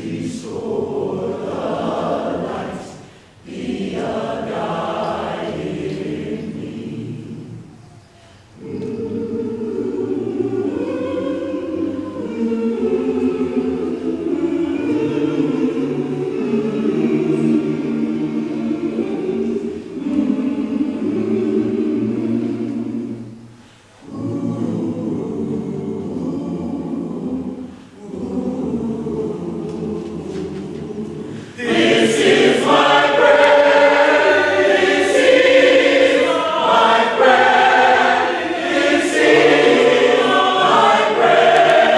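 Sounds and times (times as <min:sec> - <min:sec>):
choir singing a cappella: 0:00.0 - 0:41.9
breaths: 0:03.0 - 0:03.4, 0:08.1 - 0:08.6, 0:23.5 - 0:24.0, 0:27.7 - 0:28.0, 0:31.2 - 0:31.6.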